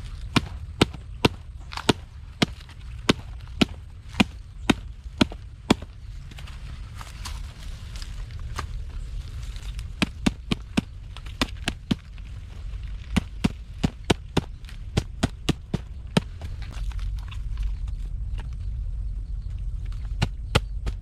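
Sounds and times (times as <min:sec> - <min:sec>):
low steady rumble: 0:00.0 - 0:21.0
blade chopping wood: 0:00.2 - 0:05.9, 0:10.0 - 0:12.1.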